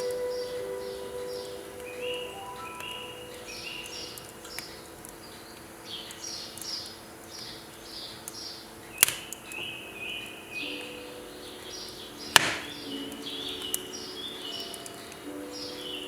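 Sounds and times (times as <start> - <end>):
small birds chirping: 0.0 - 16.0
firewood crack: 4.2 - 9.6, 12.3 - 12.8.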